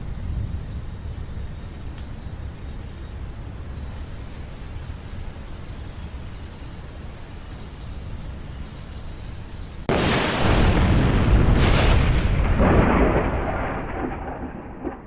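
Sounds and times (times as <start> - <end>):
rain hiss: 0.0 - 15.0
close thunderclap rolling: 9.9 - 15.0.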